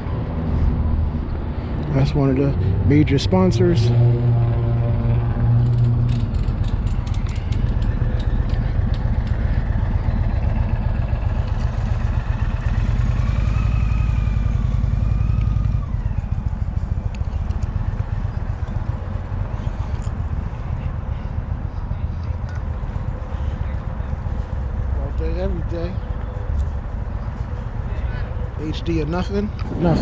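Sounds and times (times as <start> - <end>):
motorcycle engine rumbling: 4.4 - 24.9.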